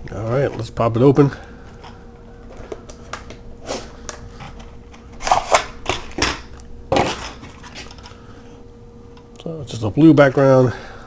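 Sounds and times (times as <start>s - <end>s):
cardboard and plastic rustling: 1.4s - 8.5s
packaging clicks and taps: 1.8s - 3.4s.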